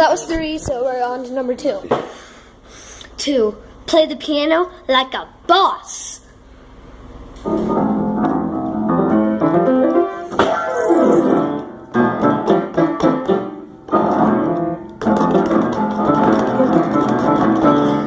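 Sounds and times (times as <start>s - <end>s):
piano clusters: 7.5s - 12.5s.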